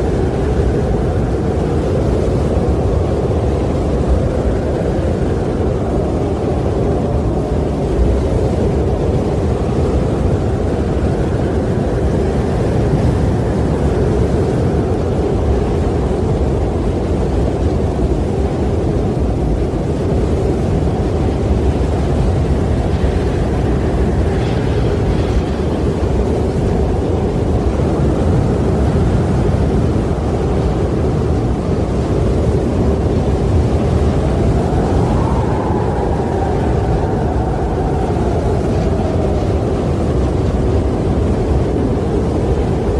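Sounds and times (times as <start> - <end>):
strong wind with howling whistle: 0.0 - 42.9.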